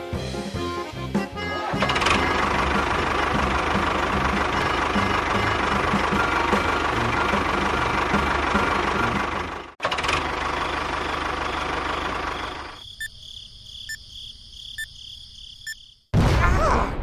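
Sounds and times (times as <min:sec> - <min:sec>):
small motor rattling: 0:01.8 - 0:12.8.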